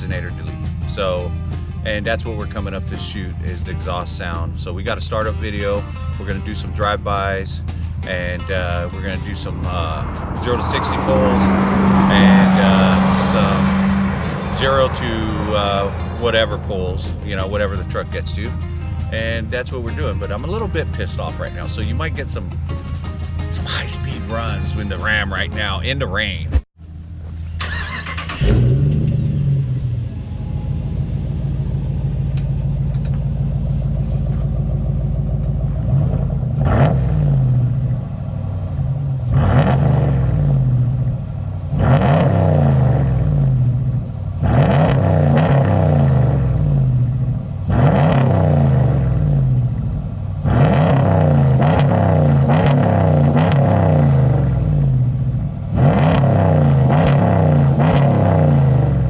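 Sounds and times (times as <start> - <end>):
engine revving: 0.0 - 26.7, 27.6 - 59.0
engine idling: 0.0 - 36.8
vehicle engine starting: 0.0 - 59.0.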